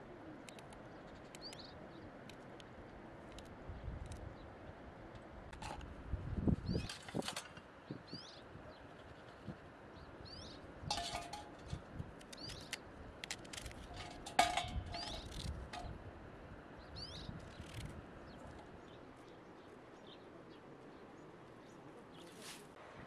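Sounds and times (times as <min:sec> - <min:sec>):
small birds chirping: 0:00.0 - 0:02.4, 0:07.8 - 0:10.7, 0:12.2 - 0:12.9, 0:16.8 - 0:22.6
scattered clicks: 0:00.4 - 0:04.3, 0:12.2 - 0:13.9.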